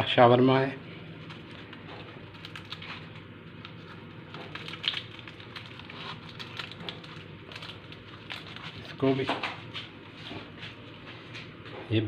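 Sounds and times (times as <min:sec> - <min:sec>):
food crackling on hot pan: 0:03.8 - 0:08.6.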